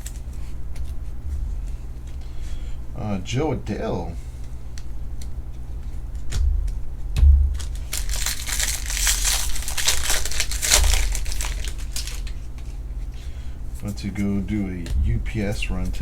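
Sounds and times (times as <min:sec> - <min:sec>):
foil wrappers crinkling: 0:00.0 - 0:02.8, 0:04.2 - 0:16.0
knock: 0:14.9 - 0:16.0.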